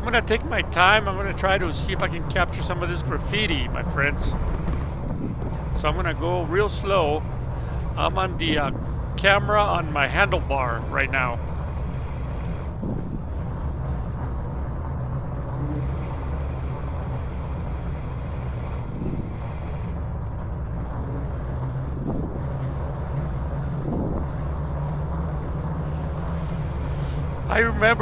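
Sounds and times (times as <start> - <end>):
low rumble in a tunnel: 0.0 - 28.0.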